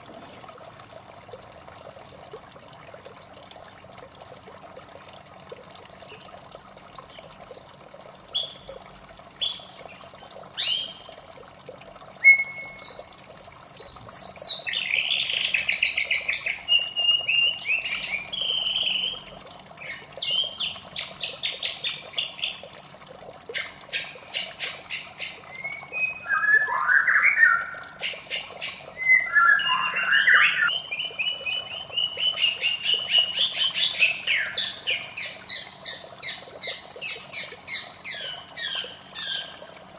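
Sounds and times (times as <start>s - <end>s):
faint water sound: 0.0s - 39.9s
bird singing whistled notes: 12.2s - 13.0s, 25.5s - 27.8s, 29.0s - 34.6s.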